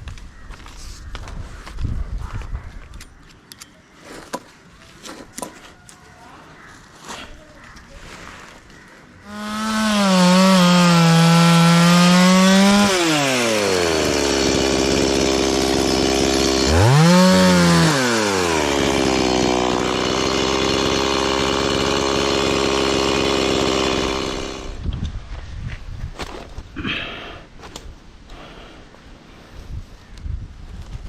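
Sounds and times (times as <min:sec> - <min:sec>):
chainsaw revving: 0:09.2 - 0:24.8.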